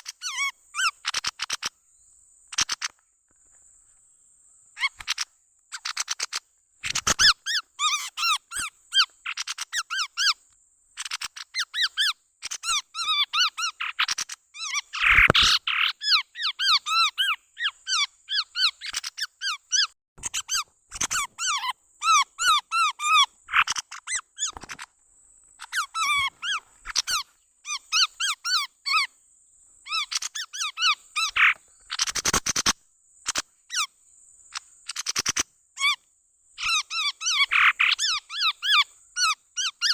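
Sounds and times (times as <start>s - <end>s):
bird chattering calls: 0.0s - 1.7s, 2.5s - 3.0s, 4.8s - 10.4s, 11.0s - 24.9s, 25.6s - 29.1s, 29.8s - 33.9s, 34.5s - 36.0s, 36.6s - 39.9s.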